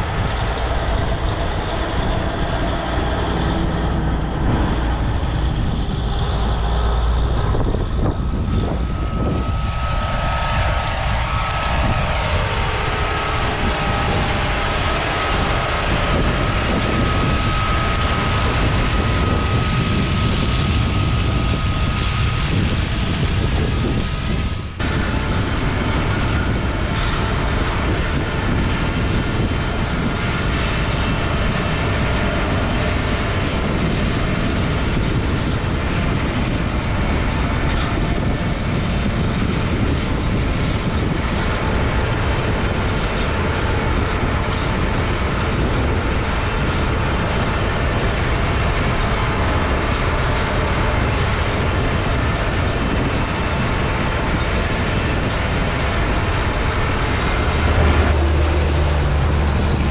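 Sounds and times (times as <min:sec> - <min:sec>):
diesel machinery rumbling and clattering: 0:00.0 - 0:59.9.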